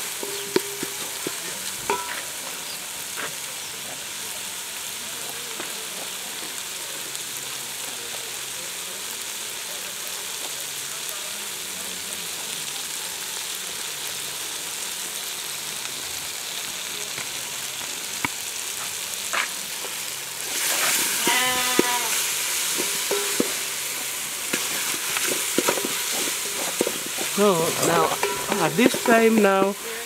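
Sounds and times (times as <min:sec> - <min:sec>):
vegetables sizzling in a pot: 0:00.0 - 0:30.0
wooden spoon knocking a pot: 0:00.2 - 0:02.2, 0:22.8 - 0:23.7, 0:24.5 - 0:29.8
farm animal bleating: 0:21.1 - 0:22.2.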